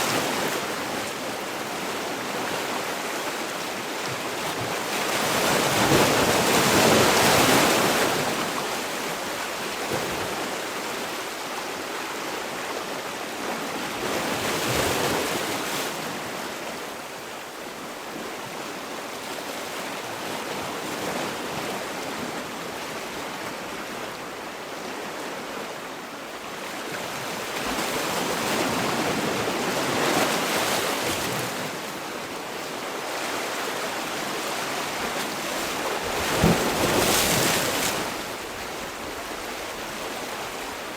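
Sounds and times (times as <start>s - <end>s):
sea waves breaking ashore: 20.1s - 40.9s.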